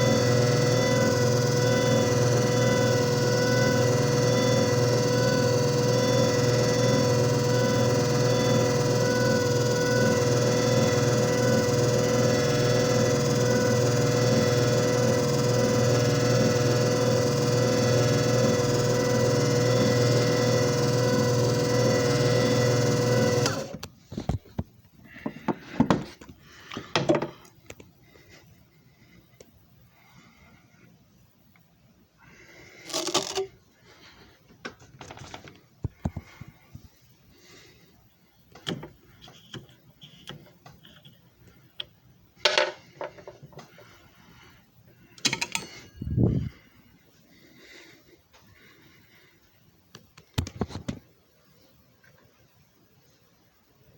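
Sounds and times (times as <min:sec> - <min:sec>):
machine motor humming: 0:00.0 - 0:23.9.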